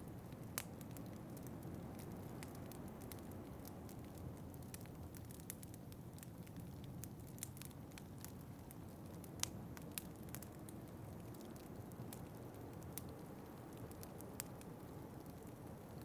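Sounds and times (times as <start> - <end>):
low rush of flame: 0.0 - 16.0
wood fire crackling and popping: 0.0 - 16.0.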